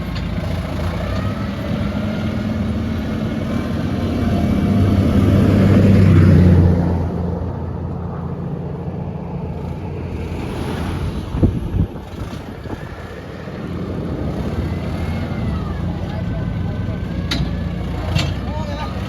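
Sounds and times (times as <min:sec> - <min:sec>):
heavy machinery diesel engine: 0:00.0 - 0:19.0
sharp knocks: 0:17.2 - 0:18.5.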